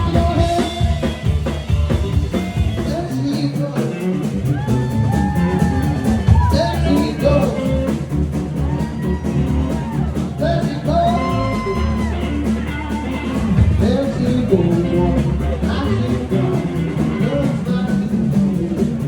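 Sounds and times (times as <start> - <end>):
person singing: 0.0 - 1.6, 2.8 - 19.0
bass: 0.0 - 19.0
drum beat: 0.0 - 19.0.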